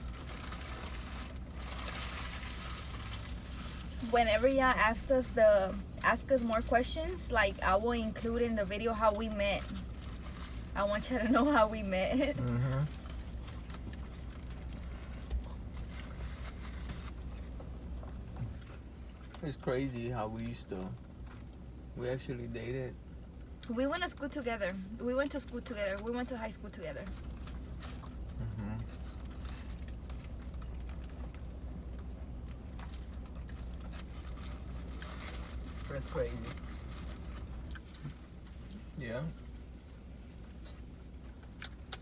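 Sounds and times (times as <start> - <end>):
low hum: 0.0 - 19.5
steady low hum: 0.0 - 42.0
chewing: 11.7 - 19.4, 27.0 - 38.9.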